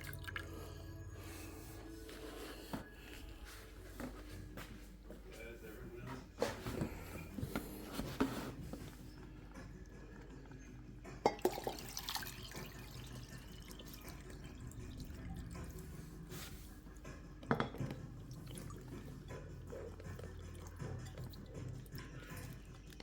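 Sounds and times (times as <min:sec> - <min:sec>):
water dripping and trickling: 0:00.0 - 0:00.6, 0:11.4 - 0:16.3, 0:20.0 - 0:23.0.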